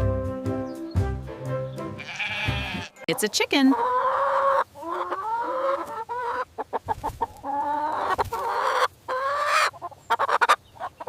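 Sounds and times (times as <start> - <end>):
chicken calling: 2.0 - 11.0
chicken clucking: 2.1 - 11.0.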